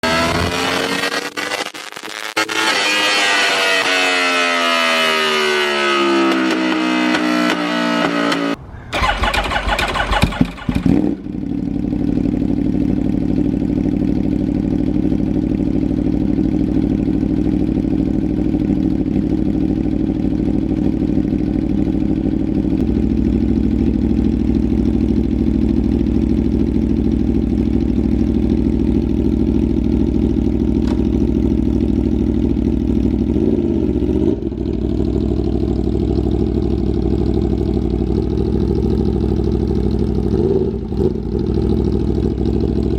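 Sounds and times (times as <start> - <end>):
motorcycle engine idling: 8.6 - 42.9.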